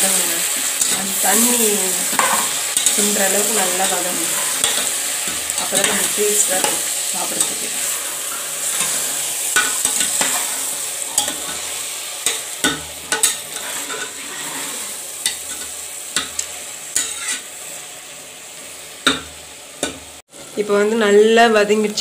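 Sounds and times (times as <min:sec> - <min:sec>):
vegetables sizzling in a pot: 0:00.0 - 0:22.0
utensil scraping metal pot: 0:00.8 - 0:16.4, 0:17.0 - 0:17.4.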